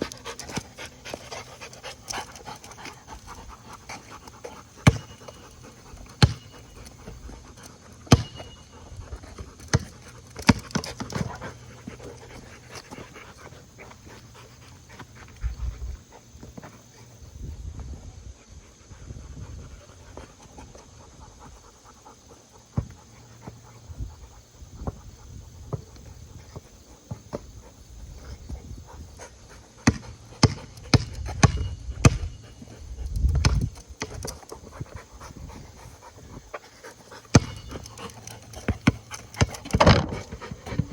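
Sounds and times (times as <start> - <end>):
dog panting: 0.0 - 40.9.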